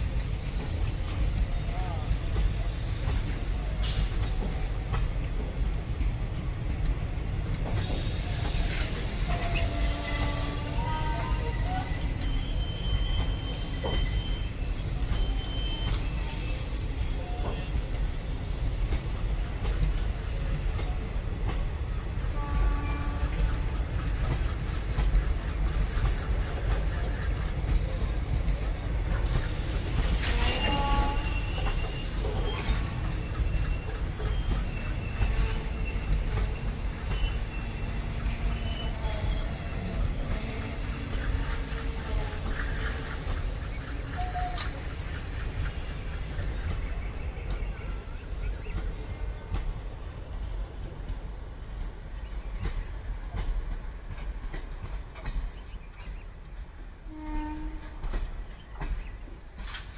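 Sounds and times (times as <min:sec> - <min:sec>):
train wheels rumbling on rails: 0:00.0 - 0:59.9
high-pitched wheel squeals: 0:03.3 - 0:05.0, 0:09.2 - 0:17.8, 0:30.1 - 0:40.8.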